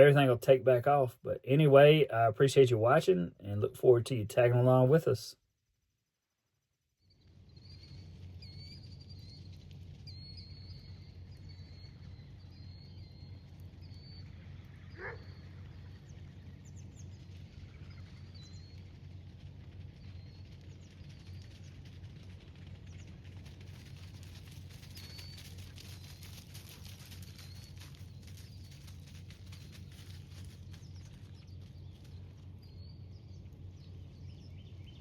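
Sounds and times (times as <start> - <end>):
steady low rumble: 0.0 - 5.3, 7.3 - 35.0
small birds chirping: 7.5 - 19.2, 24.2 - 35.0.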